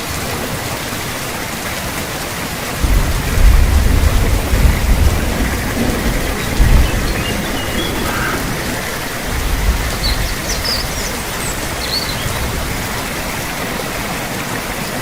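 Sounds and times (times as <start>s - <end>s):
steady rain: 0.0s - 15.0s
deep rumble of thunder: 2.8s - 13.6s.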